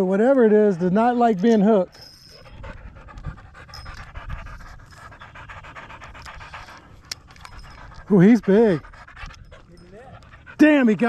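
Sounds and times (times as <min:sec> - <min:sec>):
wind rumble on microphone: 0:02.3 - 0:10.8.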